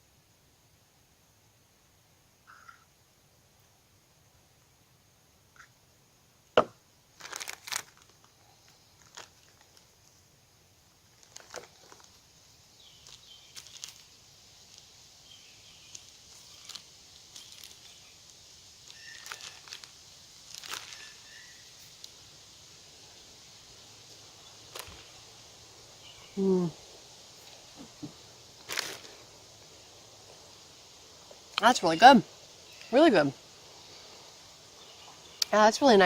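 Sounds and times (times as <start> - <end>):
faint steady hiss: 0.0 - 36.0
crinkling and rustling: 7.2 - 10.2, 11.0 - 12.3, 13.0 - 14.9, 15.9 - 21.2, 24.7 - 25.2, 27.4 - 29.2.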